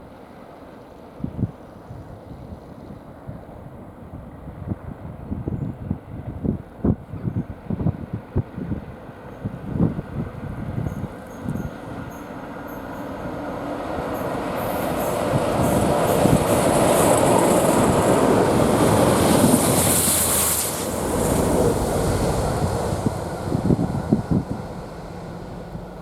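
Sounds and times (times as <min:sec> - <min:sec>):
train wheels rumbling on rails: 0:08.4 - 0:26.0
high hiss: 0:19.2 - 0:25.7.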